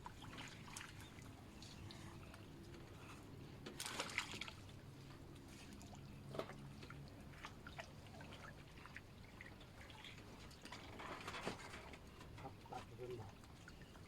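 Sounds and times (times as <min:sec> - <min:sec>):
water splashing and dripping: 0:03.7 - 0:04.8.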